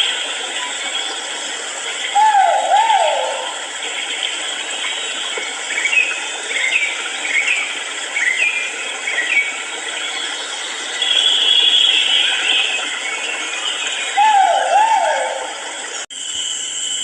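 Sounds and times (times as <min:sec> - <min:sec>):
insect-like hum: 0:00.0 - 0:17.0
bird chirping calls: 0:02.0 - 0:03.6, 0:11.0 - 0:15.7.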